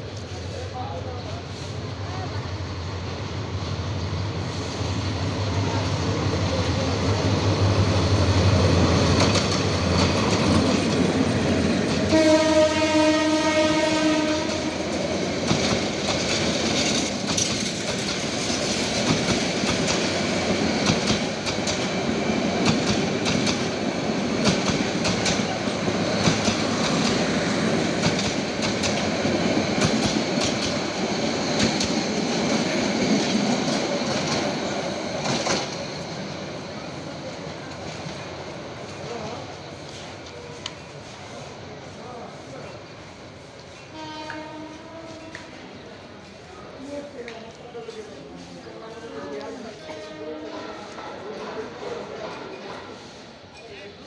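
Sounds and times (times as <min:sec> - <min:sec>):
diesel train engine humming: 0:00.0 - 0:42.4
train coaches rumbling past: 0:00.0 - 0:54.0
train horn blast: 0:12.0 - 0:14.8, 0:43.9 - 0:45.5.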